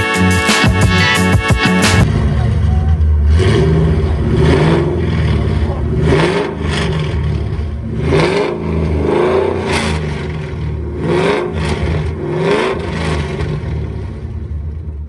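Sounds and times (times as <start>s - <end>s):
car engine revving: 0.0s - 14.3s.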